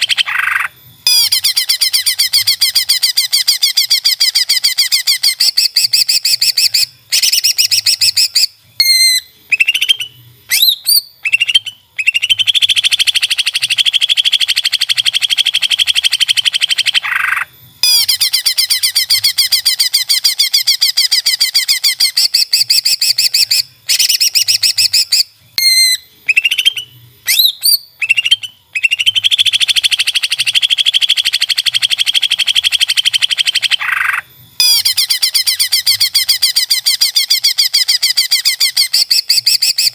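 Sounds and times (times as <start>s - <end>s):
bird chattering trills: 0.0s - 39.9s
rising whistled bird notes: 0.0s - 39.9s.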